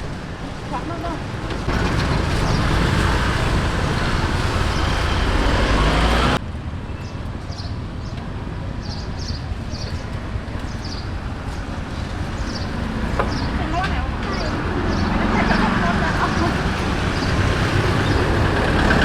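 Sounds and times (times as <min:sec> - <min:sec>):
street traffic: 0:00.0 - 0:19.0
motor vehicle rising in pitch: 0:01.8 - 0:06.4.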